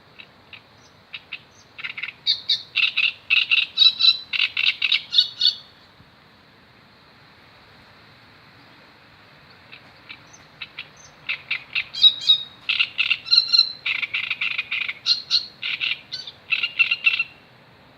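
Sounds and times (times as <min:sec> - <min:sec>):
bird calling repeated notes: 0:00.2 - 0:05.8, 0:09.6 - 0:17.5.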